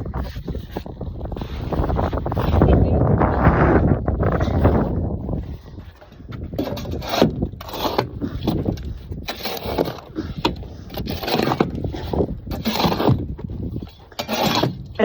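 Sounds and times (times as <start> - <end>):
sharp knocks and rattles: 5.9 - 15.0
shovel scraping sand and gravel: 6.6 - 15.0.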